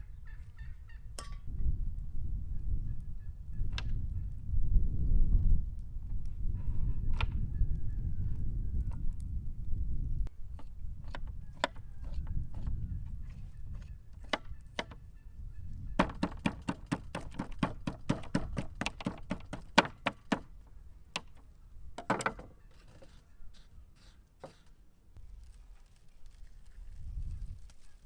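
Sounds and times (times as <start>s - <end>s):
quick knocks: 16.0s - 20.5s.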